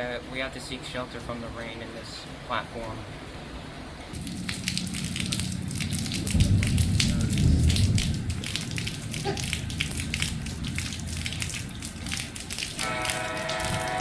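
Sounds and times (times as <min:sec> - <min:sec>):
rain dripping on a shelter: 0:04.1 - 0:14.0.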